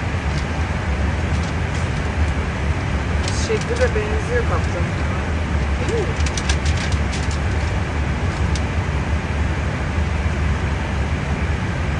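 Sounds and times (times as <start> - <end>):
airliner rumble in cockpit: 0.0 - 11.9.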